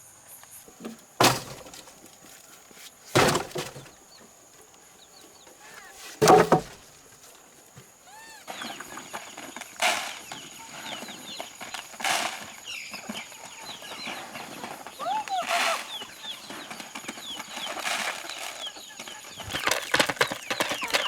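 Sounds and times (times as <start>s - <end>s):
chickens calling: 7.6s - 21.0s.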